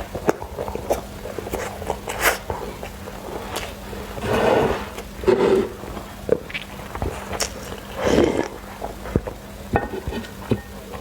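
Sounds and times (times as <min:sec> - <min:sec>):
chewing and mouth smacks: 0:00.0 - 0:03.8, 0:06.0 - 0:09.4.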